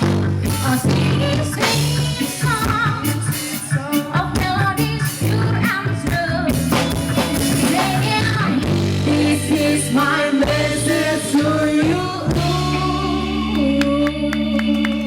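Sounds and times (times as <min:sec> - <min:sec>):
drums: 0:00.0 - 0:15.0
steady bass line: 0:00.0 - 0:15.0
person singing: 0:07.5 - 0:15.0.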